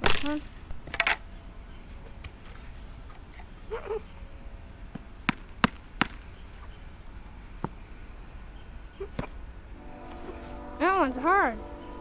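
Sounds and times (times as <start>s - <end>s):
fan blade cracking: 0.0s - 1.3s.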